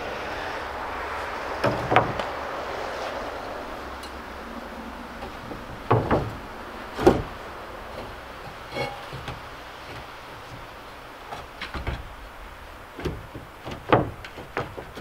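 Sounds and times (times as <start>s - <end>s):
timber knocks and thuds: 1.6s - 2.4s, 5.2s - 15.0s.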